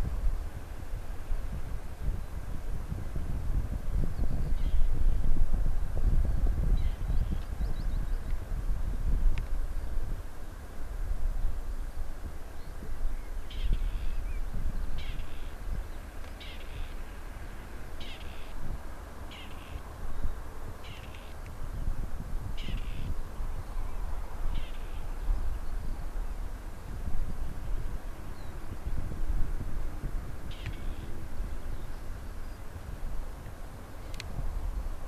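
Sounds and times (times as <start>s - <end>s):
bird harsh calls: 15.0s - 18.6s, 19.3s - 19.8s, 20.8s - 21.4s, 22.6s - 23.1s, 24.5s - 25.2s.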